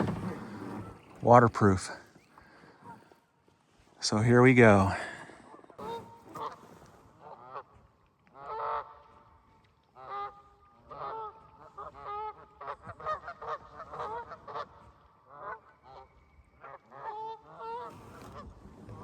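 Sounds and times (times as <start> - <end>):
geese honking: 5.8 - 9.3, 10.0 - 18.0.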